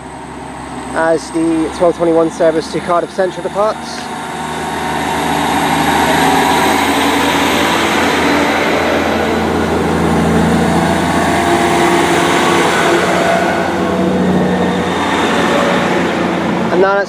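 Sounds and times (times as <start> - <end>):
train diesel engines working hard: 0.0 - 17.0.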